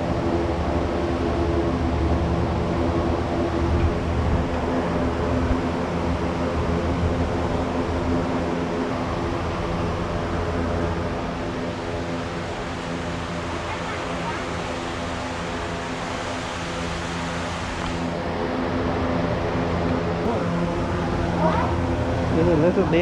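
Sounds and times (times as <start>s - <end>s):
mechanical drone: 0.0s - 23.0s
even hiss: 11.5s - 18.2s.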